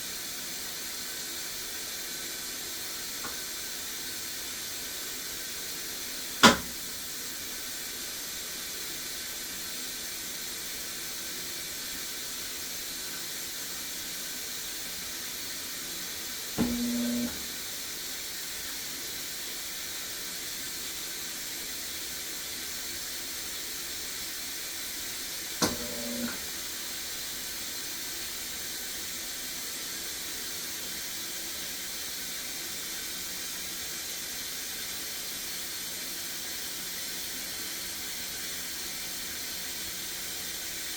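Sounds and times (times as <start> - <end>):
water hissing into washer: 0.0 - 40.9
sharp click: 6.4 - 6.8, 25.6 - 26.0
washer click-then-buzz: 6.4 - 6.9, 16.6 - 17.5, 25.6 - 26.5.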